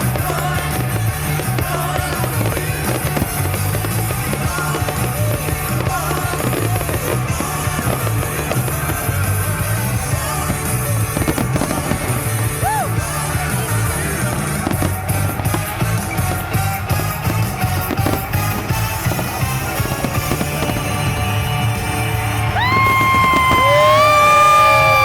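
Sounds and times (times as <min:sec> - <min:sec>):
fireworks going off: 0:00.0 - 0:25.0
loud music with heavy bass: 0:00.0 - 0:25.0.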